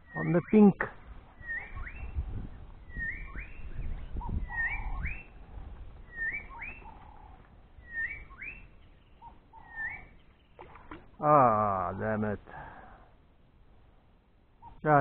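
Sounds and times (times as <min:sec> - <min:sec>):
bird whistling call: 0:01.4 - 0:02.2, 0:02.9 - 0:05.4, 0:06.1 - 0:10.5.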